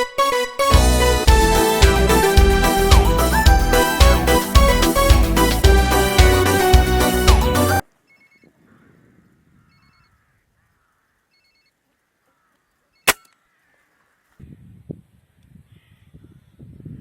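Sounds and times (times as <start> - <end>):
faint high chirps: 8.1 - 8.5
air rifle shot: 13.1 - 13.3.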